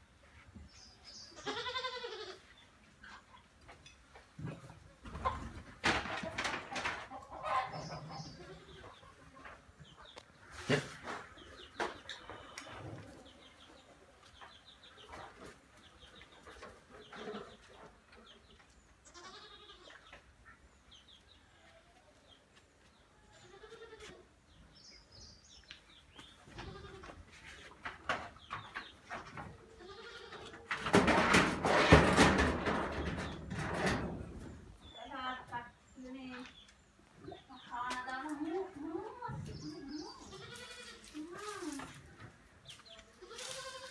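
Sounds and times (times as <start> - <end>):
goat bleating: 1.3 - 2.4, 19.1 - 20.0, 23.4 - 24.2, 29.7 - 30.5, 40.2 - 41.7, 43.2 - 43.9
chickens clucking: 2.4 - 18.8, 25.6 - 35.0.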